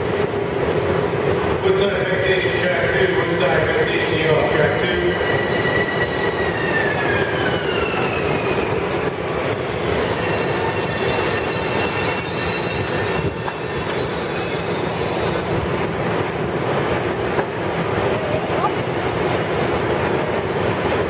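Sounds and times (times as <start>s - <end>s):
wheel and rail noise: 0.0s - 21.0s
high brake squeal: 9.5s - 15.5s.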